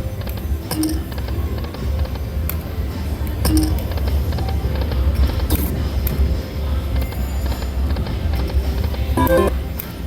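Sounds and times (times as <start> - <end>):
low casino floor hum: 0.0 - 10.0
short beeping tones: 9.2 - 9.5
slot machine music: 9.2 - 9.6.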